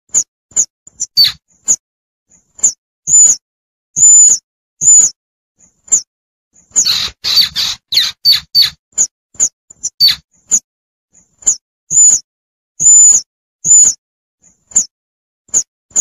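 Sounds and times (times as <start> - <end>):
baby squirrel squeaking: 0.2 - 1.8, 2.6 - 3.4, 4.0 - 5.2, 6.7 - 8.8, 9.4 - 10.6, 11.4 - 12.2, 12.8 - 14.0, 14.7 - 14.9.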